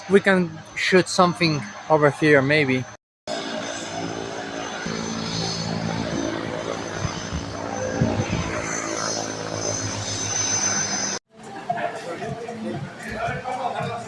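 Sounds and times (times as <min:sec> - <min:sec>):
propeller aircraft engine: 0:03.3 - 0:11.2.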